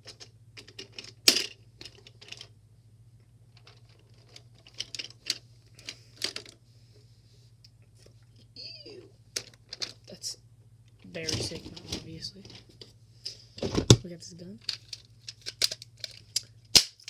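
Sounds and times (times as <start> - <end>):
plastic toys clicking: 0.0 - 2.5, 3.6 - 6.6, 9.4 - 10.0, 14.6 - 17.0
faint low hum: 0.0 - 17.0.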